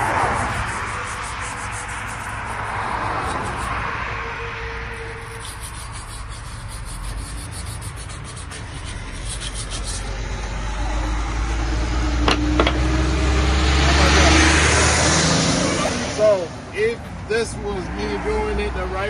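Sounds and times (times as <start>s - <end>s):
scraping strokes: 0.0s - 13.0s
low engine-like rumble: 0.0s - 16.7s.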